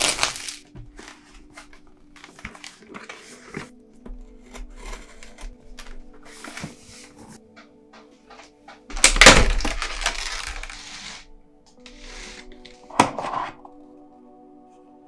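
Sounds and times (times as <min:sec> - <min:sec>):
packaging rustling and crackling: 0:00.0 - 0:07.4, 0:08.9 - 0:13.7
background music: 0:00.0 - 0:15.0.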